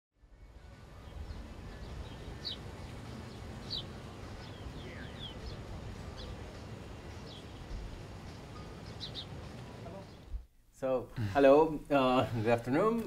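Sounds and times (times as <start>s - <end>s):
small birds chirping: 0.2s - 10.5s.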